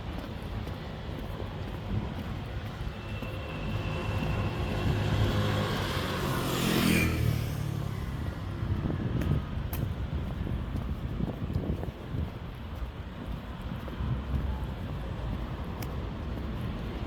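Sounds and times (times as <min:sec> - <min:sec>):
street traffic rumble: 0:00.0 - 0:17.0
motor vehicle passing close: 0:04.1 - 0:08.3.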